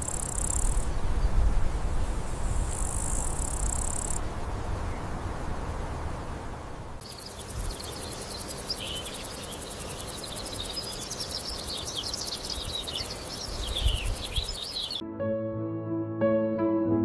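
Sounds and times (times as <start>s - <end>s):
insects trilling: 0.0s - 1.0s, 2.4s - 4.2s, 7.0s - 15.0s
small birds chirping: 7.0s - 15.0s.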